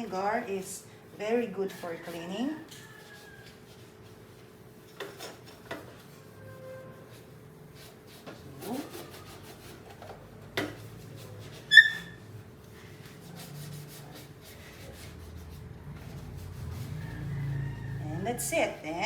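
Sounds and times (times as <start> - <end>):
sponge scrubbing stove surface: 0.0 - 19.0
short high squeak: 11.6 - 12.2.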